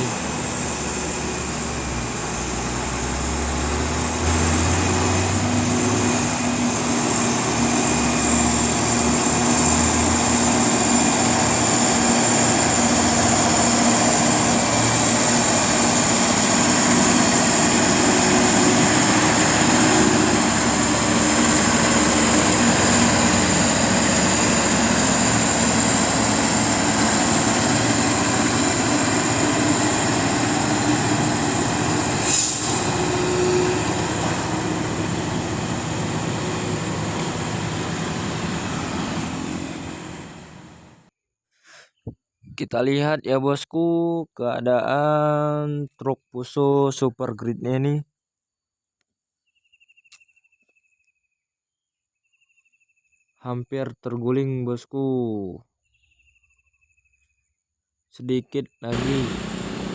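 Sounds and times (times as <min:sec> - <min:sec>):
diesel truck engine labouring: 0:00.0 - 0:41.1, 0:58.9 - 0:59.9.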